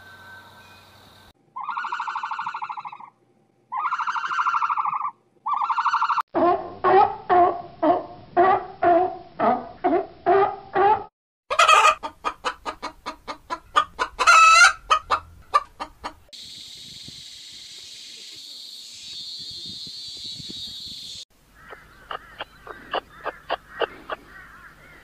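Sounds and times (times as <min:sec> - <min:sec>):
steady high hiss: 0:00.0 - 0:01.3, 0:16.4 - 0:21.6
chickens clucking: 0:11.5 - 0:16.3, 0:21.6 - 0:25.0.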